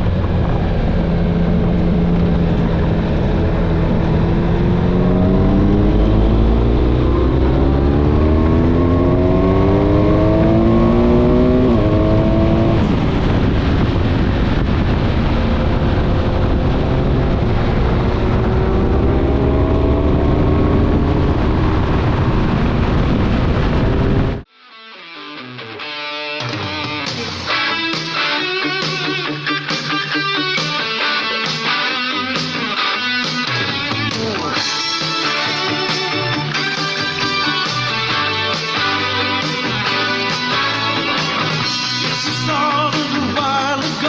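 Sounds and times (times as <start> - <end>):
motorcycle engine accelerating: 0.0 - 24.5
rushing noise: 0.0 - 24.5.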